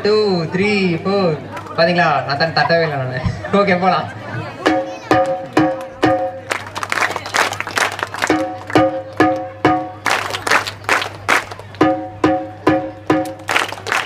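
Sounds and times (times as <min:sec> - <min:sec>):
crowd hand claps: 0:04.7 - 0:14.0
frame drum strokes: 0:08.3 - 0:10.1, 0:11.8 - 0:13.5.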